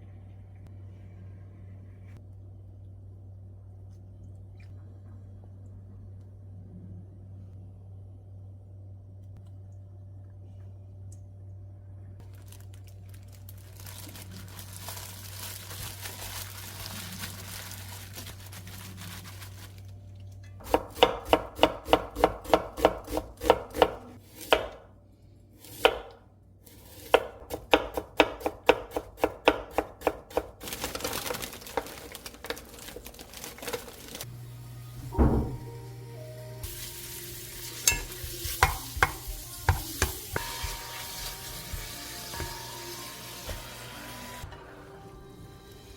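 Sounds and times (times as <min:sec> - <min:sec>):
knife chopping on cutting board: 0:20.6 - 0:24.9, 0:25.7 - 0:26.1, 0:27.0 - 0:30.5, 0:38.0 - 0:42.7
heavy thump: 0:35.0 - 0:35.7.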